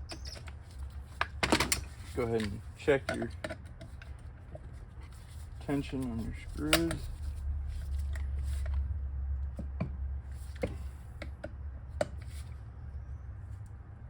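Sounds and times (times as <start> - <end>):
low steady hum: 0.0 - 14.0
metal tools clicking and tapping: 1.6 - 4.1.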